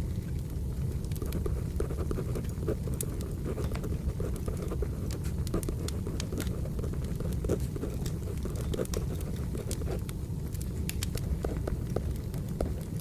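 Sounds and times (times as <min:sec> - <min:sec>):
wood fire crackling: 0:00.0 - 0:13.0
pencil writing on paper: 0:01.3 - 0:10.0.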